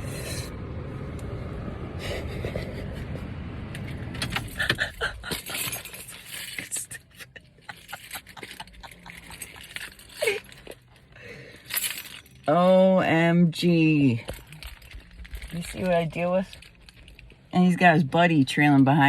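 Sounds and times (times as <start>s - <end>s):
truck engine rumble: 0.0s - 19.0s
clicks and rattles: 14.2s - 17.5s.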